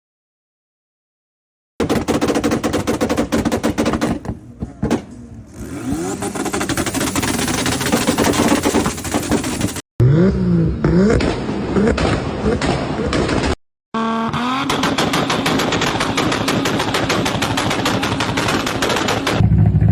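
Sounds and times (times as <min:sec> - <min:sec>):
car engine revving: 0:04.7 - 0:13.0
exhaust crackling and popping: 0:05.7 - 0:09.8, 0:14.6 - 0:19.9.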